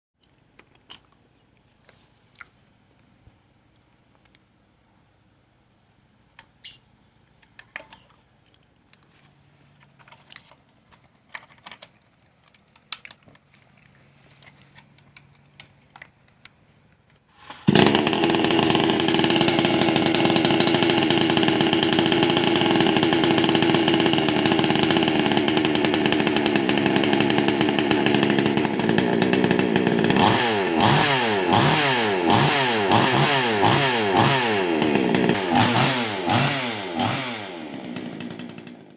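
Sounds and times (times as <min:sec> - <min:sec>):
chainsaw engine revving: 0:17.4 - 0:38.9.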